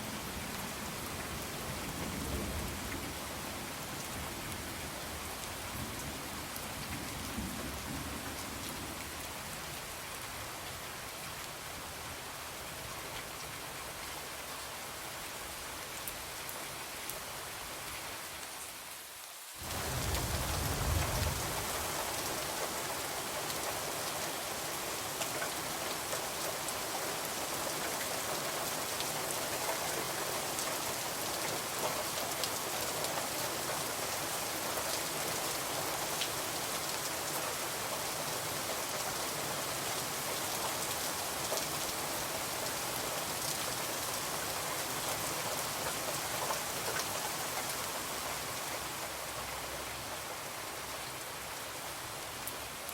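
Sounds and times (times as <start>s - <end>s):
rain pattering on a window: 19.5s - 51.1s.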